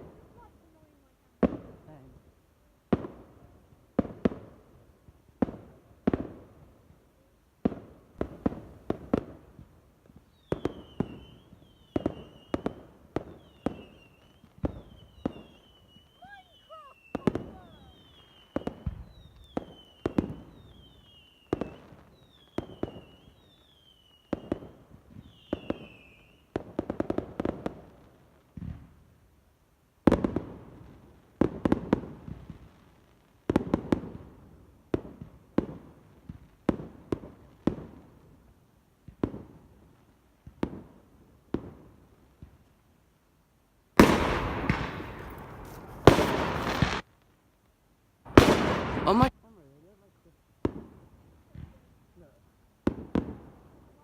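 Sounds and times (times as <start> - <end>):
fireworks bangs: 7.6 - 23.6, 44.0 - 47.1, 48.3 - 49.4, 52.8 - 54.0.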